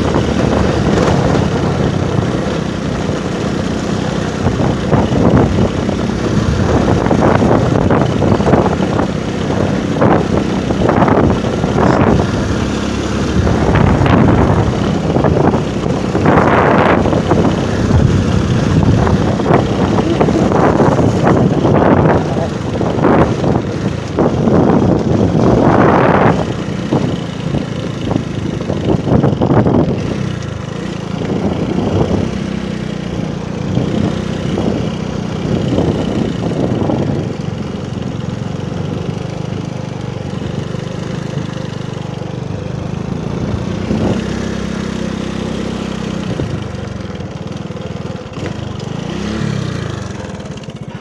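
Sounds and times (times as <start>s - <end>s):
rushes of noise: 0.0s - 37.1s
motorcycle engine running: 0.0s - 51.0s.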